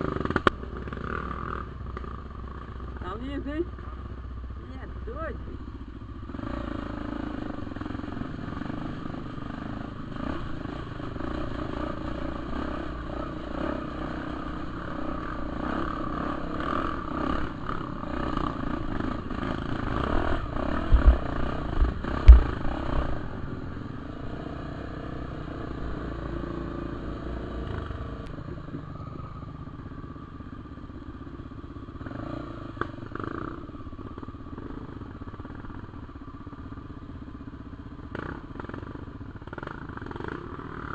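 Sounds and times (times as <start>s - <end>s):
dirt bike engine revving: 6.3s - 28.3s
heavy thumps: 20.9s - 21.2s, 21.8s - 22.7s.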